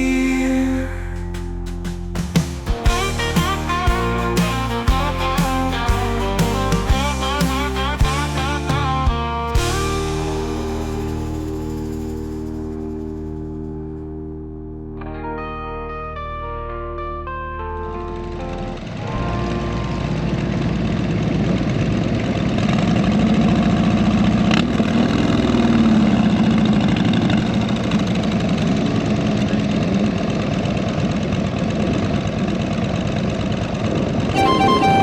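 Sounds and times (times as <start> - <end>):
motorcycle engines rumbling: 0.6 - 13.8, 18.2 - 34.8
steady high tone: 34.3 - 35.0.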